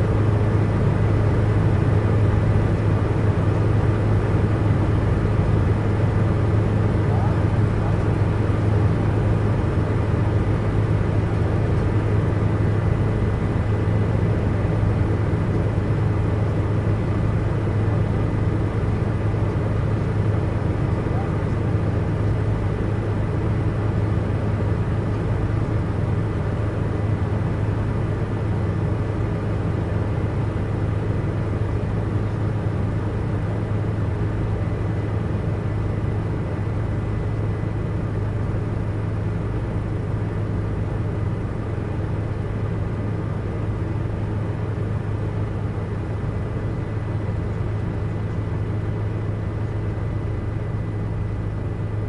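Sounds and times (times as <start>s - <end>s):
helicopter engine and rotor drone: 0.0s - 52.0s.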